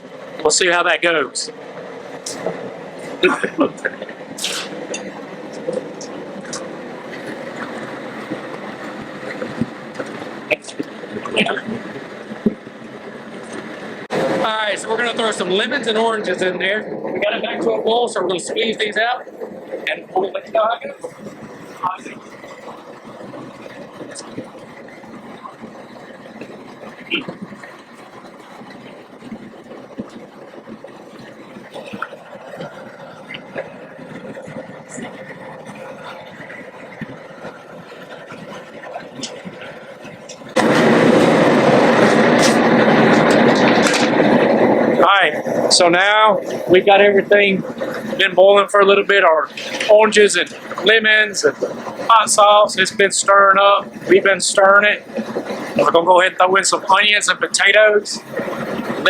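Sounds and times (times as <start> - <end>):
gas burner rushing: 0.0 - 59.0
brief hiss: 4.4 - 4.8.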